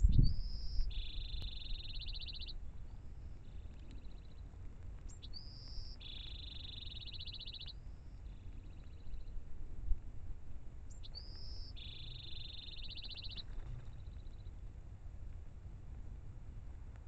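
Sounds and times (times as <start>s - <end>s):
songbird whistle and trill: 0.0s - 4.4s, 5.0s - 9.4s, 10.9s - 14.5s.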